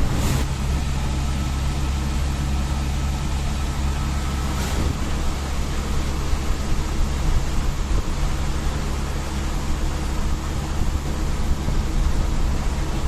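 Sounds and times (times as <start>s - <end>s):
brief swishes: 0.0s - 0.5s, 4.2s - 6.1s
road and tyre noise: 0.0s - 13.0s
vehicle engine hum: 0.0s - 13.0s.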